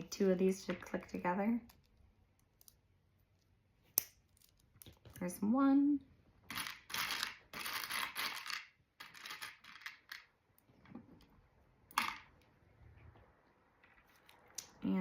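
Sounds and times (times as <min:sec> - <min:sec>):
plastic pieces rattling and clicking: 0:06.5 - 0:10.3.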